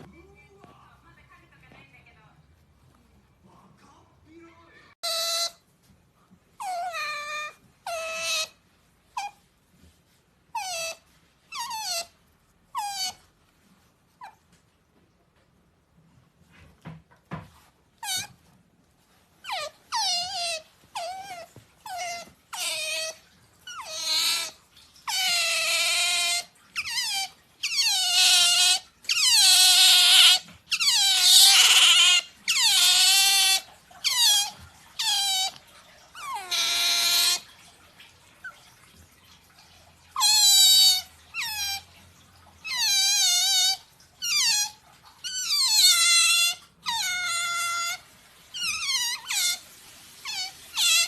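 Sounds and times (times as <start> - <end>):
otter squeaking: 6.5 - 13.4, 16.4 - 37.7, 40.1 - 42.0, 42.6 - 51.0.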